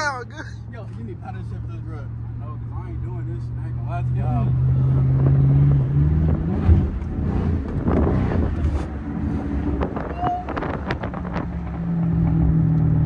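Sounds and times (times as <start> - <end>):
car engine and exhaust rumbling: 0.0 - 13.0
wind buffeting microphone: 5.1 - 12.5.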